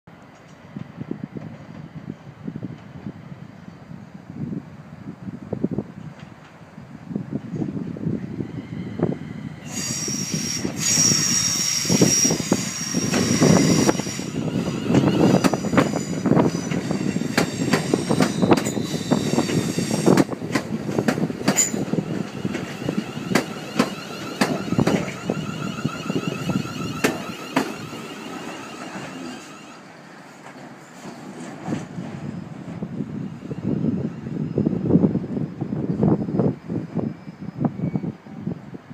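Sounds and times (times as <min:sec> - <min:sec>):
steady train whine: 0:00.1 - 0:38.9
train rumbling past: 0:00.1 - 0:38.9
high squeal: 0:08.3 - 0:20.2, 0:21.6 - 0:30.0, 0:33.2 - 0:38.6
wheels clicking over rail joints: 0:19.4 - 0:29.8.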